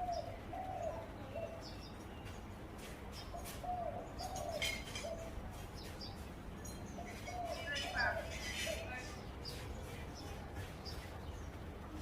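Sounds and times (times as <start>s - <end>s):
dove cooing: 0.0s - 1.7s, 3.4s - 5.4s, 7.0s - 9.1s
small birds chirping: 0.0s - 12.0s.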